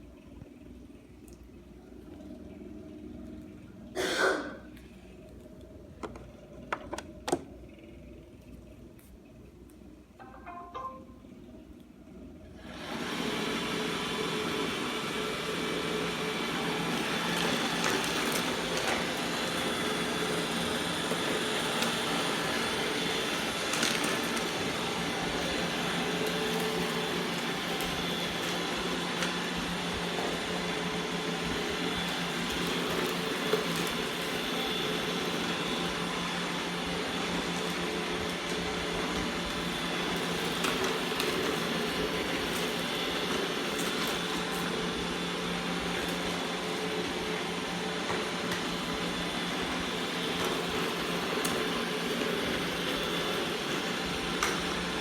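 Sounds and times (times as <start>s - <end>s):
robot vacuum motor whirring: 12.6s - 55.0s.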